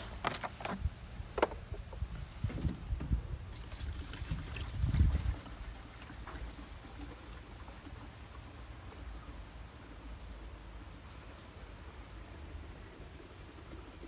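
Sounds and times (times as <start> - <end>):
wind rumble on microphone: 1.7 - 5.8.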